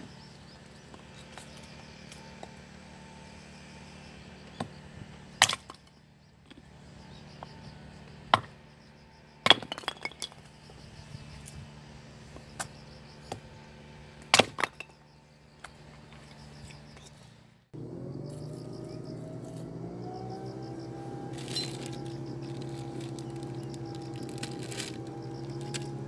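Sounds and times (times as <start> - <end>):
low steady hum: 17.8 - 26.0.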